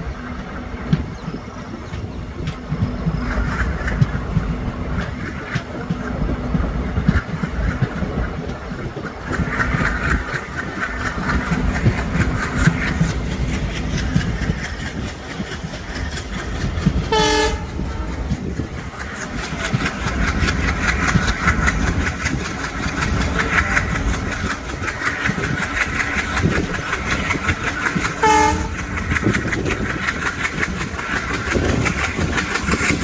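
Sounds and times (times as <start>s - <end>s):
train rumbling: 0.0s - 33.0s
wheel clatter over rail joints: 0.0s - 33.0s
train horn blast: 17.1s - 18.4s, 28.2s - 28.9s.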